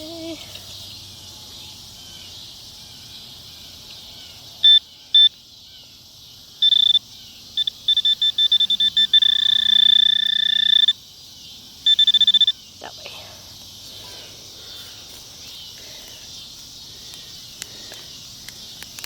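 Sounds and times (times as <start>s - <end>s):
metal detector beeping: 4.6s - 5.4s, 6.6s - 7.0s, 7.6s - 11.0s, 11.8s - 12.6s.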